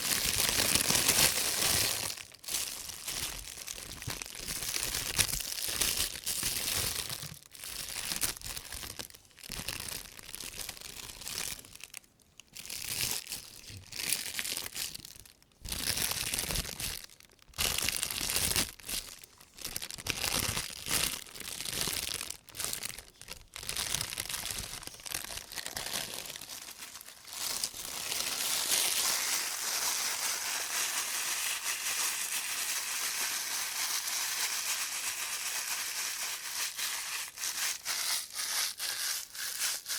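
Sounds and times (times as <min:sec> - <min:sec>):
plastic bag rustling: 0:00.0 - 0:12.0, 0:15.7 - 0:31.8.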